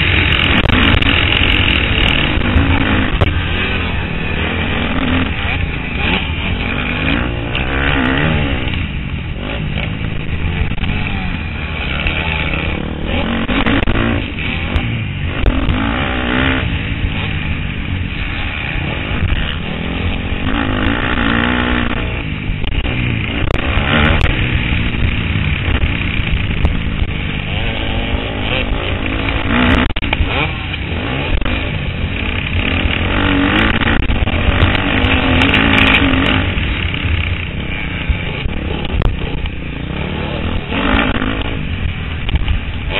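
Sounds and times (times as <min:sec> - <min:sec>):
motocross engine revving: 0:00.0 - 0:42.9.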